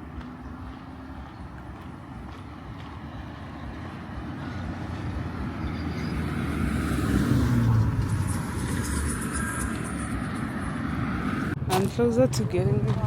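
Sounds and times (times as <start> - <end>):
car driving past: 0.4 - 11.6.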